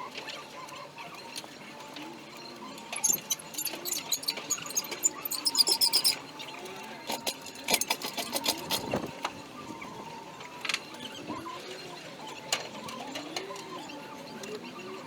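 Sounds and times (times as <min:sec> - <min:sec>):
metallic clicks and rattles: 0:03.0 - 0:06.2.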